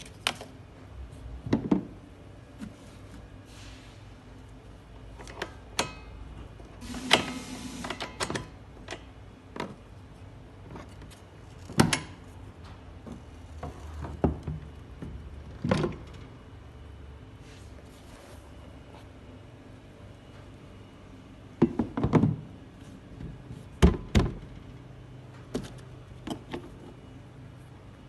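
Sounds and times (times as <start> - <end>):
objects knocking and clunking: 1.4 - 2.0, 10.6 - 16.2, 21.6 - 22.6.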